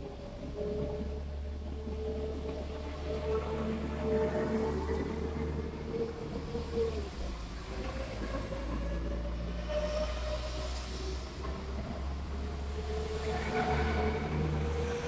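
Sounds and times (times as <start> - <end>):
diesel train engine drone: 0.0 - 15.0
engine whine: 0.0 - 15.0.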